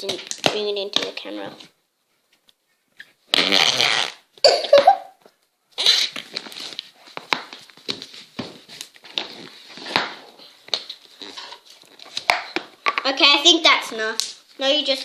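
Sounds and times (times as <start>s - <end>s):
slime fart-like noises: 3.3s - 4.9s, 5.8s - 6.3s.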